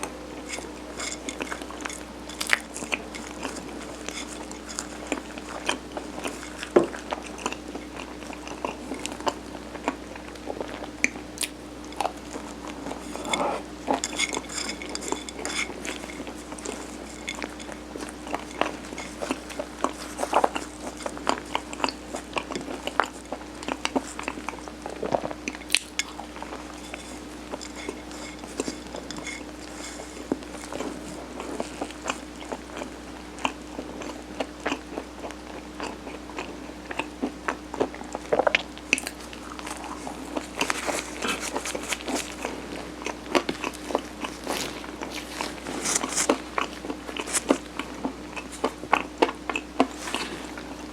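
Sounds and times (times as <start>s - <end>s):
utensils tapping a dish: 0.0s - 7.0s, 13.0s - 21.9s, 25.6s - 30.8s
chewing and biting: 0.0s - 50.9s
faint steady hum: 0.0s - 50.9s.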